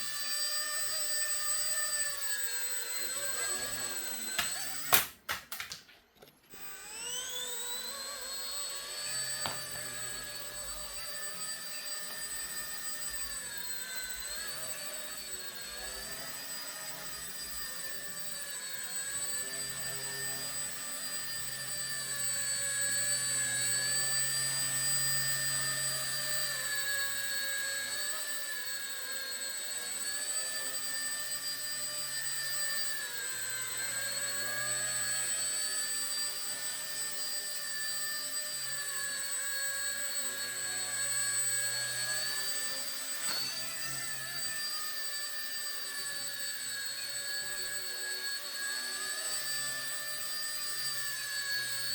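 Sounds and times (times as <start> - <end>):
rc helicopter rotor whining: 0.0 - 5.2, 6.5 - 51.9.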